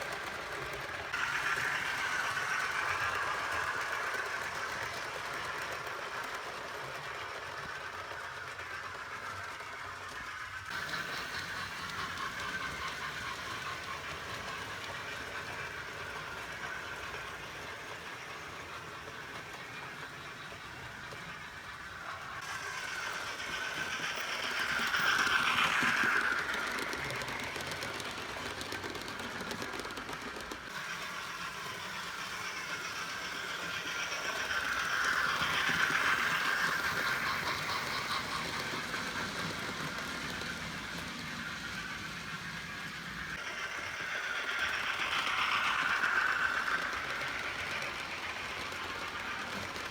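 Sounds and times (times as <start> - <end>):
model train steam sounds from speaker: 0.0 - 28.6, 30.7 - 49.9
model motor and wheels whirring: 0.0 - 49.9.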